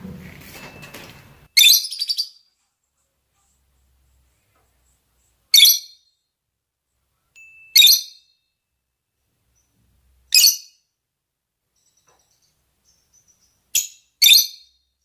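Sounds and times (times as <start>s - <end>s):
lovebird shrill calls: 1.6s - 2.4s.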